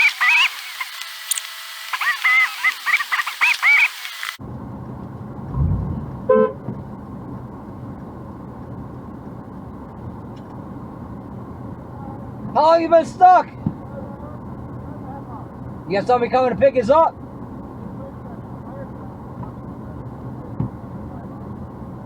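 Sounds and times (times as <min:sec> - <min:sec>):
low rumble: 0:04.5 - 0:07.6
brief pitched sound: 0:05.5 - 0:06.7
short honks: 0:06.2 - 0:06.7.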